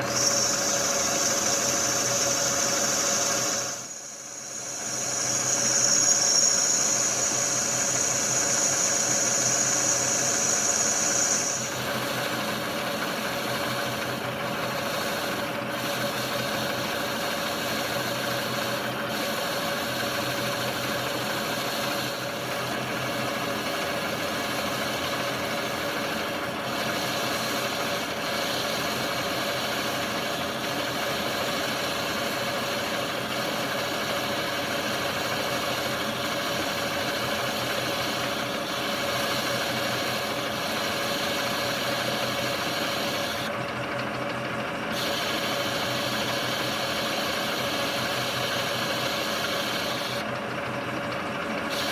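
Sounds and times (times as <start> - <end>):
high-pitched cutting whine: 0.0 - 13.0
lathe humming: 0.0 - 51.9.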